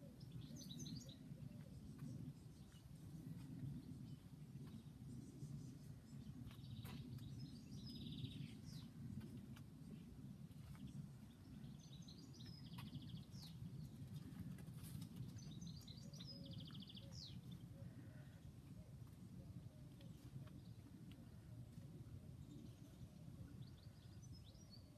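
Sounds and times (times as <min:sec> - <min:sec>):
songbird singing trills: 0:00.0 - 0:09.3, 0:10.8 - 0:14.2, 0:15.1 - 0:18.9.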